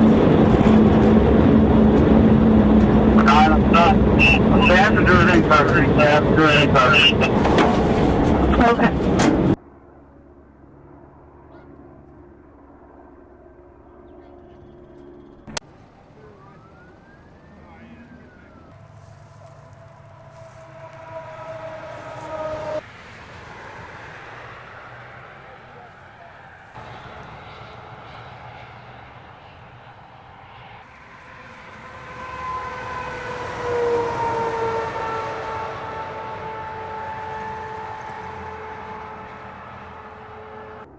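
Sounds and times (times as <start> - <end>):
vehicle engine humming: 0.0 - 9.6, 13.8 - 40.9.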